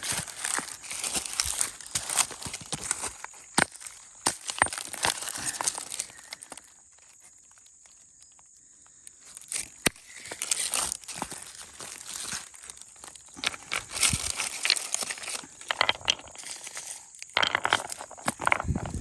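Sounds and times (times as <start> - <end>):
footsteps crunching through leaves: 0.0 - 6.4, 9.4 - 15.6
stones knocking together: 0.0 - 6.7, 9.6 - 19.0.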